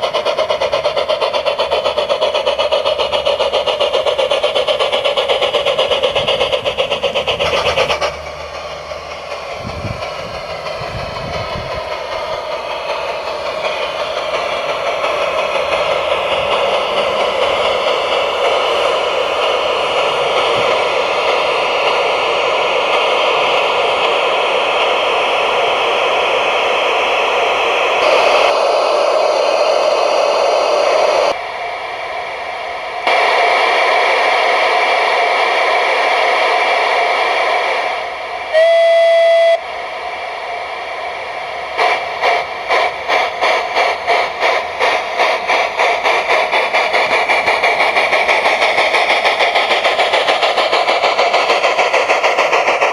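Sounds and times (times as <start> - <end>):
steam hiss: 0.0 - 52.9
steam locomotive exhaust chuffs: 0.0 - 52.9
locomotive whistle blast: 38.5 - 39.8.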